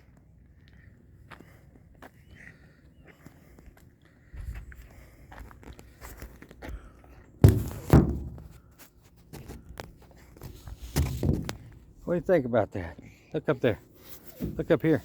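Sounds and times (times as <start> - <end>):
footsteps of person walking: 0.0 - 11.8
heavy thuds: 7.4 - 8.7.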